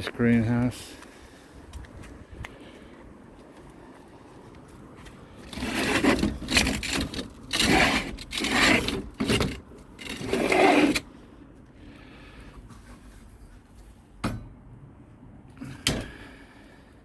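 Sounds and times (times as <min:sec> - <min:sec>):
people talking: 0:00.0 - 0:01.0
sliding door scraping along track: 0:05.4 - 0:11.1.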